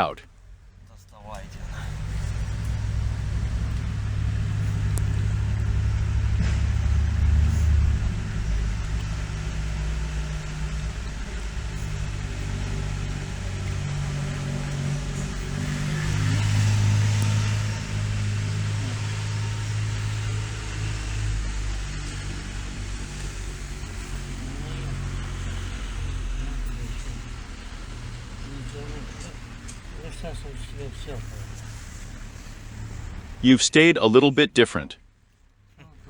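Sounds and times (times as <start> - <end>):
low engine rumble: 0.0 - 36.0.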